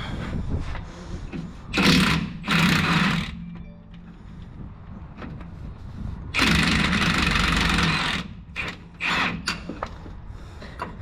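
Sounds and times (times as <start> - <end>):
power wrench running: 1.7 - 3.4, 6.4 - 9.7.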